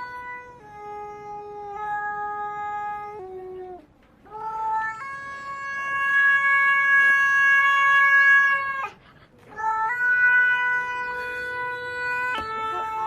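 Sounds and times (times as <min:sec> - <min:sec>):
autotuned cat meows: 0:09.5 - 0:13.0.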